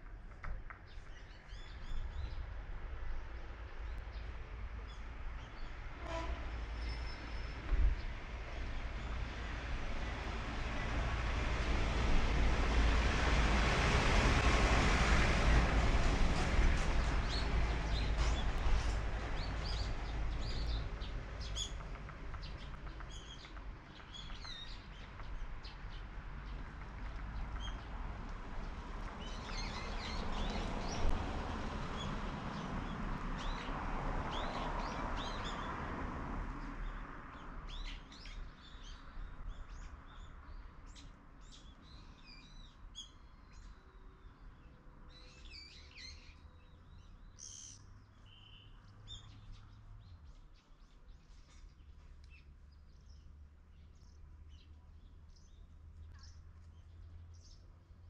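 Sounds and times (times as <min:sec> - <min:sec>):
small birds chirping: 0:17.2 - 0:28.0, 0:37.7 - 0:57.7.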